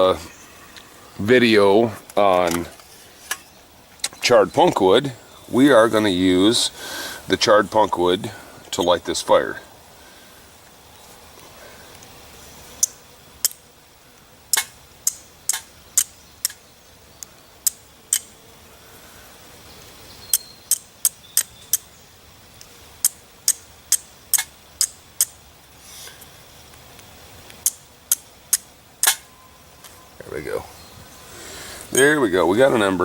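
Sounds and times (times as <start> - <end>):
flint striking steel: 27.6 - 29.3.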